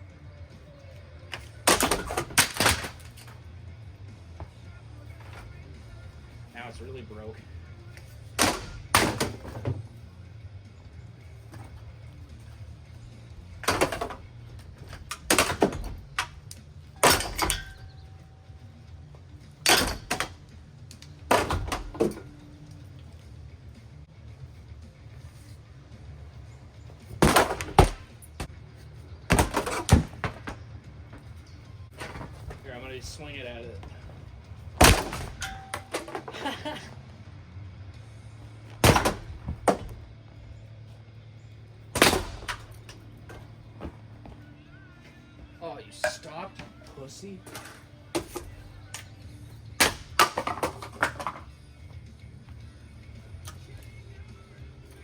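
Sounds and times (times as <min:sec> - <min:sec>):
metal fan being smashed: 0:01.4 - 0:03.4, 0:08.3 - 0:09.8, 0:13.6 - 0:18.1, 0:19.6 - 0:20.5, 0:21.2 - 0:22.3, 0:27.1 - 0:28.4, 0:29.3 - 0:30.6, 0:34.8 - 0:36.8, 0:38.8 - 0:40.0, 0:41.9 - 0:43.4, 0:49.8 - 0:51.5.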